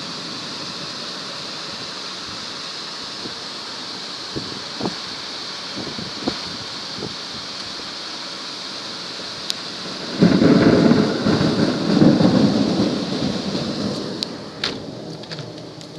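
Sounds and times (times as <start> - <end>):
steady rain hiss: 0.0 - 15.9
thunder rumble: 9.6 - 15.9.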